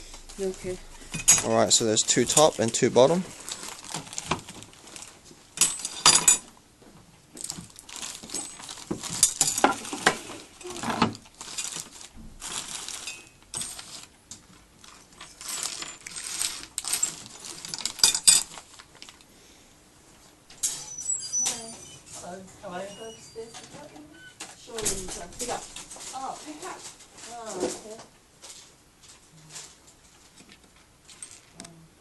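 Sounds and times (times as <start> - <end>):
metal hardware clinking: 1.0 - 2.9.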